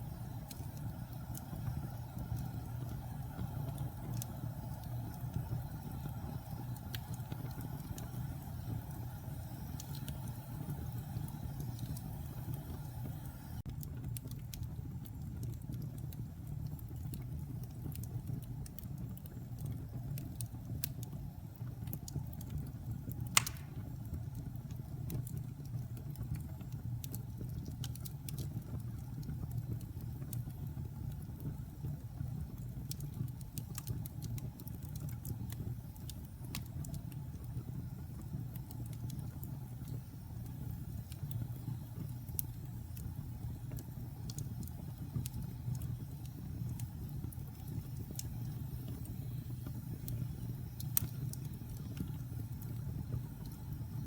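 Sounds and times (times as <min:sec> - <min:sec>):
wood fire rumbling and crackling: 0:00.0 - 0:54.0
loud sharp fire pop: 0:23.4 - 0:23.9.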